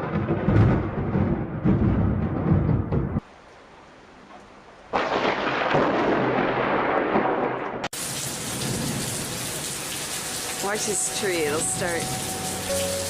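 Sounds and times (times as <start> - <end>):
low thunder rumble: 0.0 - 3.2, 4.9 - 9.7
rain and wind rushing: 0.0 - 13.0.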